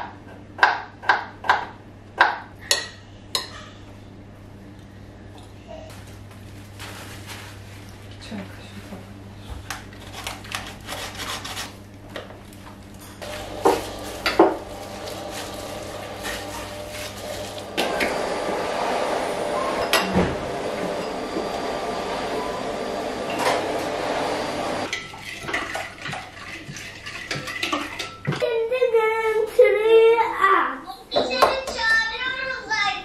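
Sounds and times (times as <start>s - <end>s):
tap water running: 13.2s - 18.8s, 23.6s - 28.4s
dishes and cutlery clattering: 24.9s - 28.4s.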